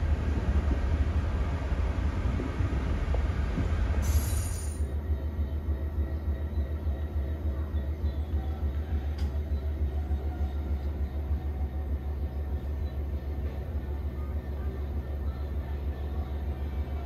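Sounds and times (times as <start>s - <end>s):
train rumbling: 0.0s - 17.0s
short hiss: 4.0s - 4.8s.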